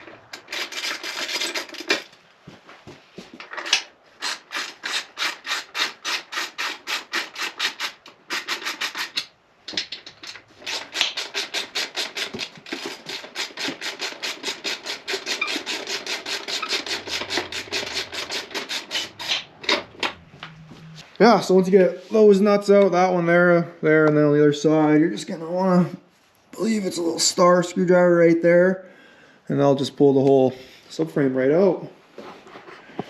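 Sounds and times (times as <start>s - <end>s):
ratchet wrench clicking: 10.7s - 19.5s.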